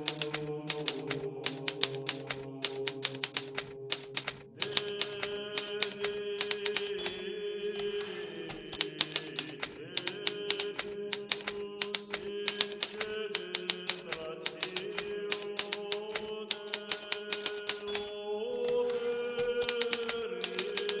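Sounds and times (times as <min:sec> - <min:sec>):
typewriter keys striking: 0:00.0 - 0:21.0.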